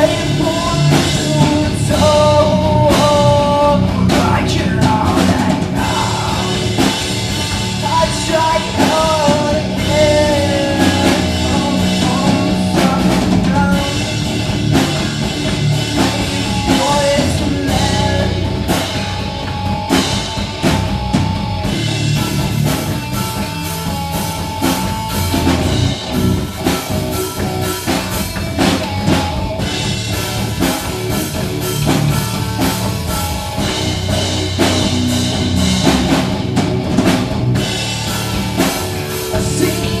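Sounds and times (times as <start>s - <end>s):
person singing: 0.0s - 7.2s, 7.8s - 14.3s, 15.8s - 19.2s, 39.0s - 40.0s
drum kit: 0.0s - 40.0s
guitars: 0.0s - 40.0s.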